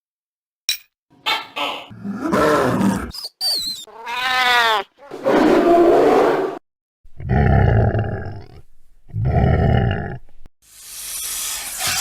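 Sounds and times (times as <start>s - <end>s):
animal roars and growls: 1.9s - 3.2s, 5.0s - 10.3s.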